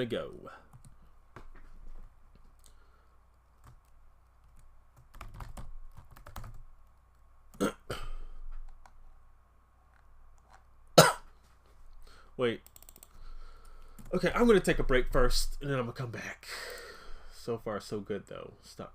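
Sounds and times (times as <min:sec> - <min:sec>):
computer keyboard typing: 0:03.6 - 0:07.0, 0:12.6 - 0:14.2.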